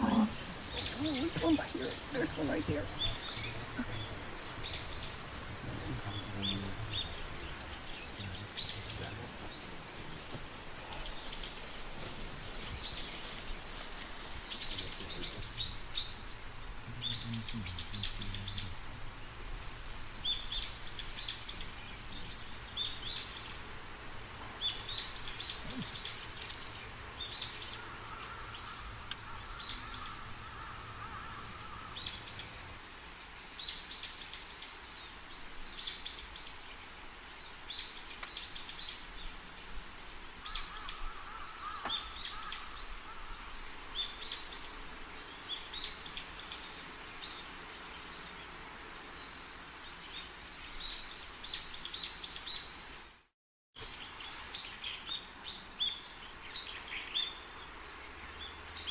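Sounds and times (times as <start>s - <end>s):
faint low hum: 0.0s - 23.6s
wild birds chirping: 0.0s - 53.2s, 53.8s - 58.9s.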